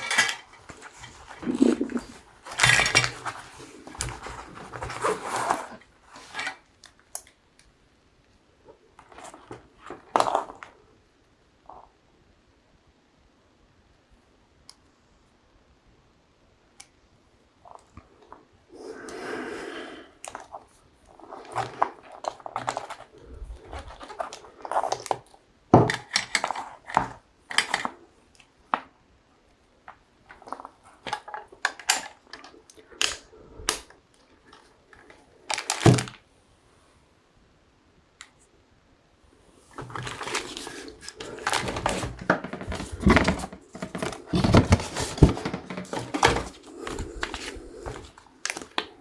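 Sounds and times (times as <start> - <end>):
packaging rustling: 0.0 - 6.6, 21.2 - 25.3, 34.5 - 36.2, 39.7 - 49.0.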